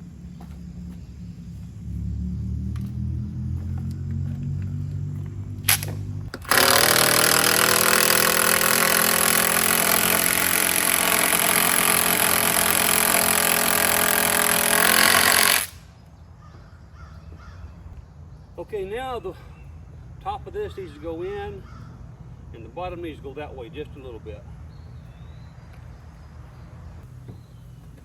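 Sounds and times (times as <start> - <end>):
power driver driving bolt into wood: 5.6 - 15.8.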